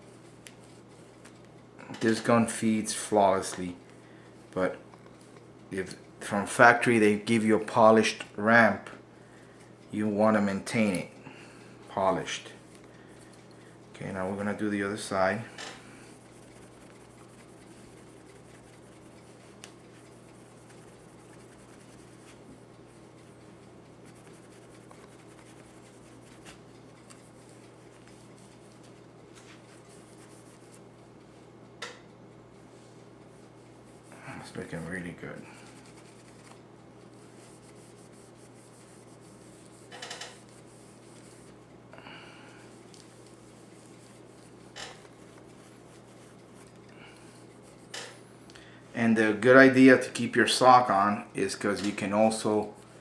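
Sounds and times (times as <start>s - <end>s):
steady low hum: 0.0s - 53.0s
hand rubbing metal: 16.0s - 30.9s, 37.2s - 41.6s
cloth rubbing on metal: 16.1s - 23.4s, 37.2s - 41.6s, 42.7s - 46.8s.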